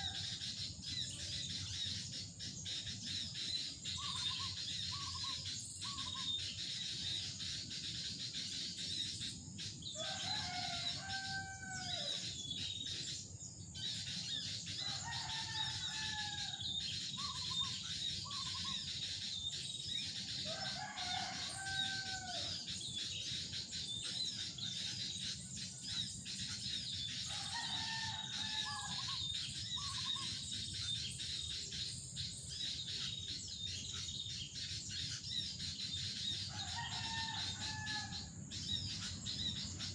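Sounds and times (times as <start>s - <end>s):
rooster crowing: 10.0s - 12.2s, 14.8s - 16.7s, 20.5s - 22.6s, 27.3s - 29.2s, 36.4s - 38.3s.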